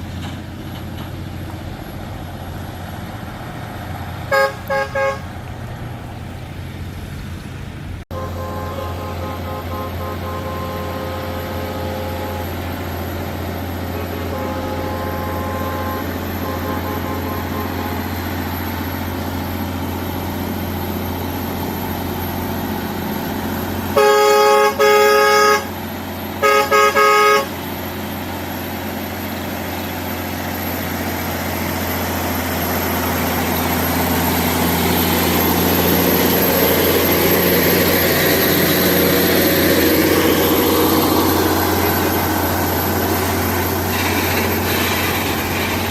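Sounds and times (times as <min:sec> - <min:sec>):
heavy truck engine running: 0:00.0 - 0:45.9
vehicle horn blasts: 0:04.3 - 0:05.4, 0:08.1 - 0:18.3, 0:23.9 - 0:25.8, 0:26.4 - 0:27.6.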